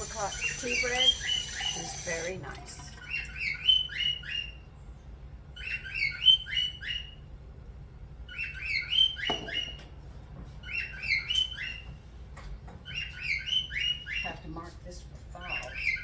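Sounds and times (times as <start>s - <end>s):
bird chirping: 0.0s - 2.4s, 3.0s - 7.3s, 8.3s - 9.8s, 10.6s - 11.9s, 12.8s - 14.6s.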